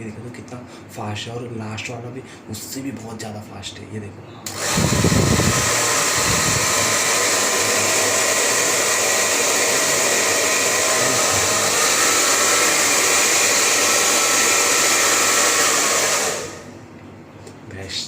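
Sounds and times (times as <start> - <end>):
hair dryer running: 4.5 - 16.8.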